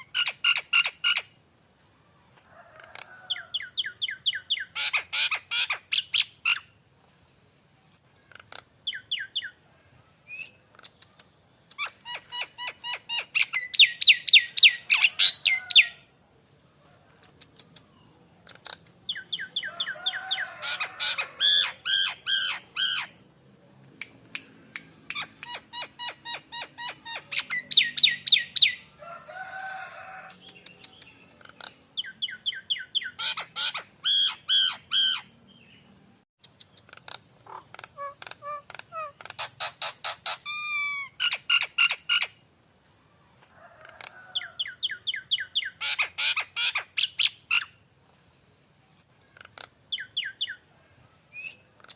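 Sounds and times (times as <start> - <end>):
bird clicking and whistling: 10.4 - 12.1, 17.2 - 19.3.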